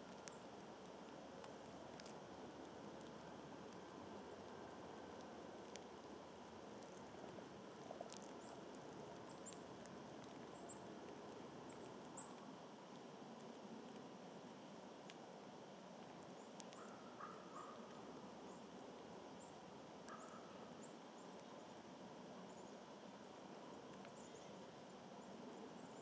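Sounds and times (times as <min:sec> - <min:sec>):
faint clicks: 0:00.0 - 0:04.0, 0:04.6 - 0:15.3, 0:16.0 - 0:18.0, 0:20.0 - 0:21.8, 0:23.1 - 0:24.7
soft steady hiss: 0:00.0 - 0:26.0
lower bird chirps: 0:09.2 - 0:09.7, 0:10.4 - 0:10.9, 0:11.7 - 0:12.4, 0:19.4 - 0:21.4, 0:22.4 - 0:26.0.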